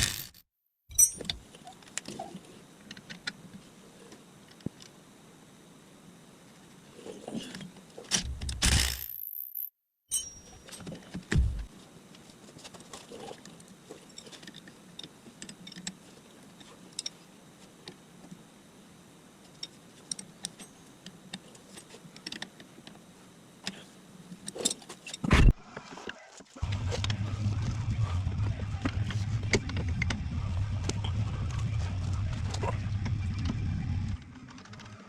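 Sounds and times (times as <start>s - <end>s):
metal tools clicking and clinking: 0.0s - 1.4s, 10.1s - 10.9s.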